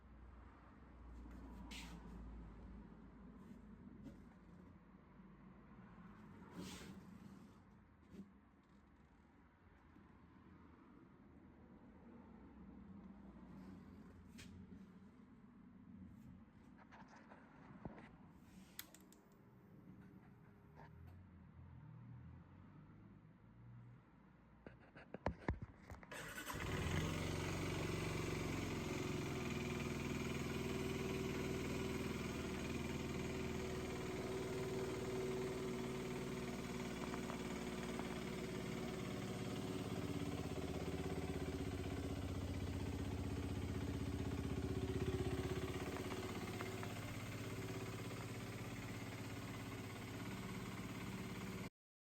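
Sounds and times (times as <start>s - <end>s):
electric starter cranking engine: 26.1s - 51.7s
motorcycle engine idling: 26.4s - 51.7s.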